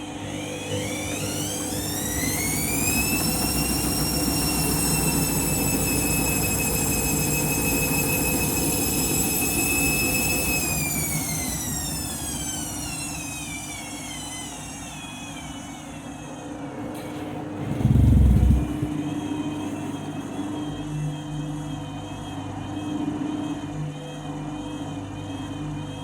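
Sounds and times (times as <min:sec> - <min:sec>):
washing machine motor whining: 0:00.0 - 0:13.2, 0:17.0 - 0:19.7
deep rumble: 0:17.6 - 0:19.0.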